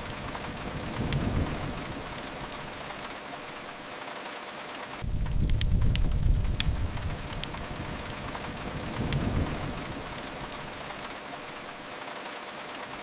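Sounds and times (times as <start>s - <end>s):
steady rain falling: 0.0s - 13.0s
wood fire crackling: 0.0s - 13.0s
low rumble: 5.0s - 10.7s.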